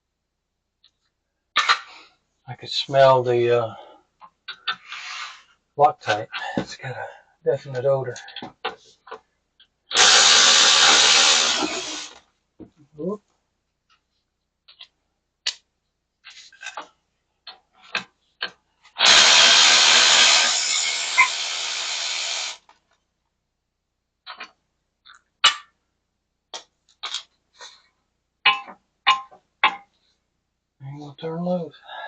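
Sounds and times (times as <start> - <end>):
handheld power tool running: 9.9 - 12.2, 19.0 - 22.6.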